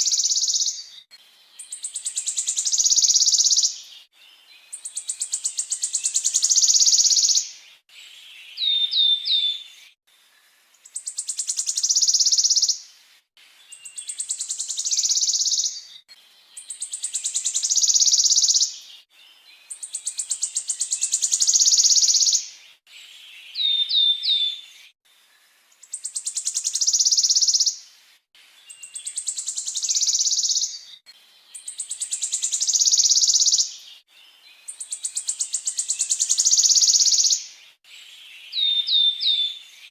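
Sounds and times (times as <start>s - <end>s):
songbird trilling: 0.0s - 1.0s, 1.6s - 3.9s, 4.8s - 7.5s, 10.8s - 12.8s, 13.8s - 15.9s, 16.6s - 18.8s, 19.8s - 22.5s, 25.9s - 27.8s, 28.7s - 30.9s, 31.6s - 33.9s, 34.7s - 37.6s.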